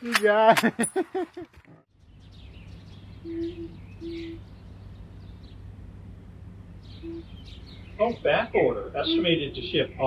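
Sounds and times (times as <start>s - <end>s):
bird high chirps: 2.0s - 5.8s, 6.7s - 9.7s
bird low hoots: 2.9s - 5.7s, 6.8s - 8.0s, 8.9s - 9.5s.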